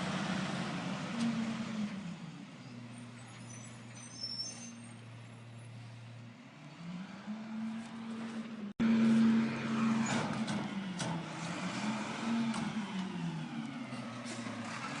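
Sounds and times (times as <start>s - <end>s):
vehicle engine humming: 4.7s - 15.0s.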